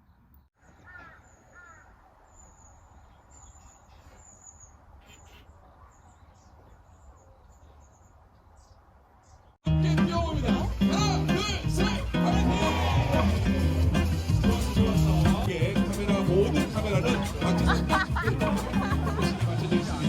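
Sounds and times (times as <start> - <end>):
small birds chirping: 0.0 - 9.6.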